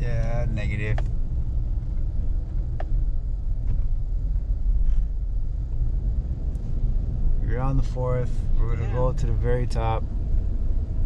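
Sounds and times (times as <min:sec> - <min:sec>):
truck engine rumble: 0:00.0 - 0:11.0
faint light ticks: 0:01.9 - 0:03.0.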